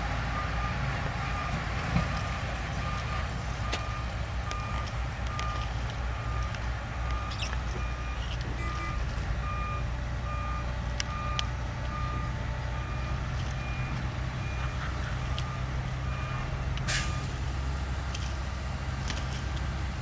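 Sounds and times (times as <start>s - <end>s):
reversing alarm beeping: 0.0s - 17.7s
diesel truck engine running: 0.0s - 20.0s
air brake hiss: 16.9s - 17.3s.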